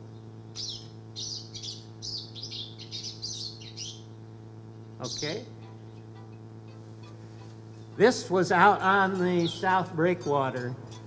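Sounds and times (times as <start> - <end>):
bird twittering song: 0.0 - 6.2, 9.2 - 10.6
low electrical hum: 0.0 - 11.0.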